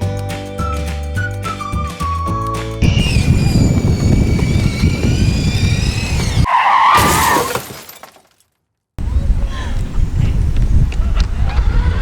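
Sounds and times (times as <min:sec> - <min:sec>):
electric motor whine: 0:02.8 - 0:06.5.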